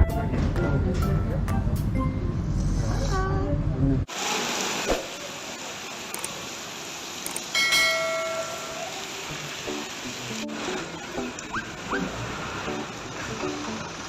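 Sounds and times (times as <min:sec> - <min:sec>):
rain hissing: 0:04.0 - 0:14.0
bell-like chime: 0:07.6 - 0:08.9.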